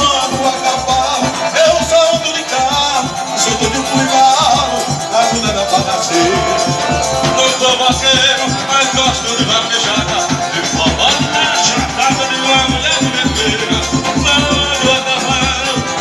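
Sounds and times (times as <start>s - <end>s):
instrumental dance music with bass beat: 5.2s - 9.6s.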